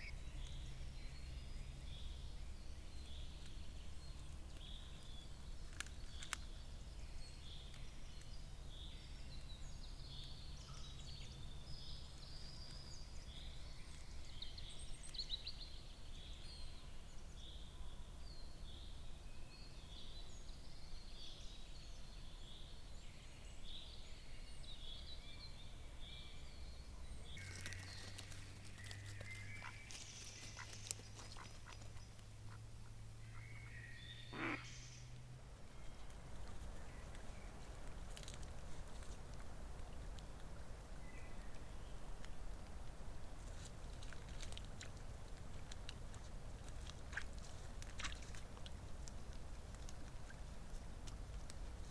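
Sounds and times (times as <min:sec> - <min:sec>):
small birds calling: 0:00.0 - 0:17.6, 0:23.3 - 0:42.5.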